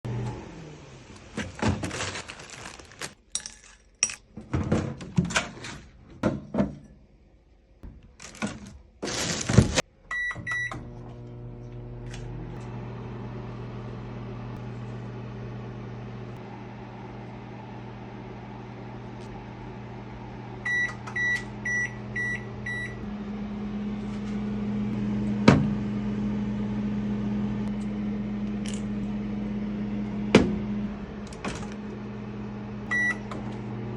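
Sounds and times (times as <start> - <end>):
microwave oven humming: 0.1 - 2.6, 9.4 - 33.9
microwave keypad beeps: 10.1 - 10.8, 20.6 - 23.0, 32.9 - 33.4
microwave beeps: 10.1 - 11.1, 20.6 - 23.6, 32.8 - 33.5.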